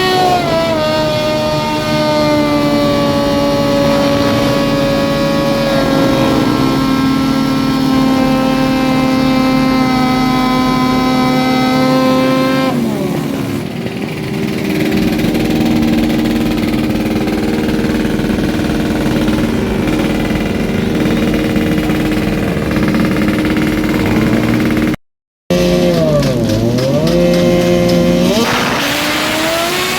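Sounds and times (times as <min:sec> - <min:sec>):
motorcycle engine revving: 0:00.0 - 0:29.9.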